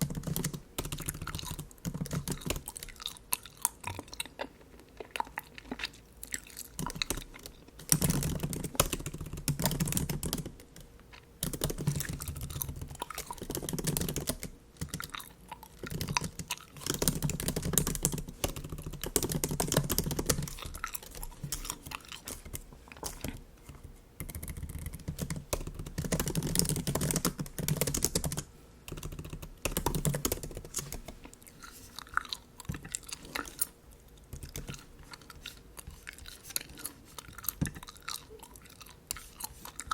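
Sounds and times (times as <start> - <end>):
typing on keyboard: 0.0 - 3.1, 6.8 - 15.2, 15.8 - 22.6, 24.2 - 31.1
gum chewing: 0.0 - 8.9, 9.6 - 25.1, 29.9 - 39.9.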